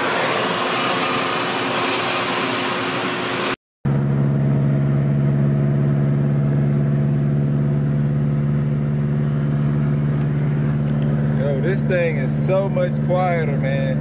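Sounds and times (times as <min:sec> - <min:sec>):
car engine idling: 0:03.9 - 0:13.9.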